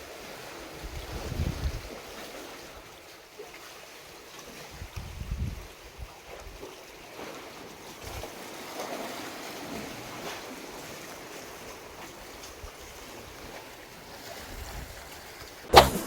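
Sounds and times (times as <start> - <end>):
wind on microphone: 0.8 - 2.0, 4.7 - 6.6.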